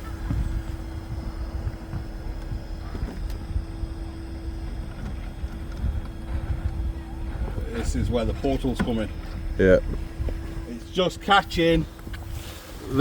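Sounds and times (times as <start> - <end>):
electric motor whine: 0.0 - 13.0
wind rumbling on microphone: 0.0 - 13.0.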